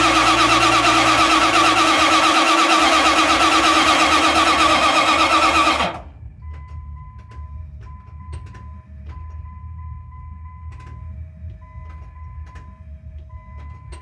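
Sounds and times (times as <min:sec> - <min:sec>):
engine cranking on starter: 0:00.0 - 0:06.2.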